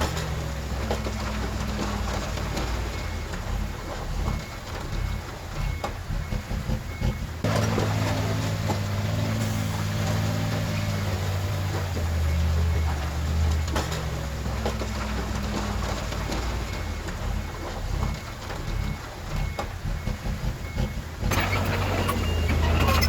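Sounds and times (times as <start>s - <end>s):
diesel engine running: 0.0s - 23.0s
faint reversing beeper: 15.5s - 23.0s.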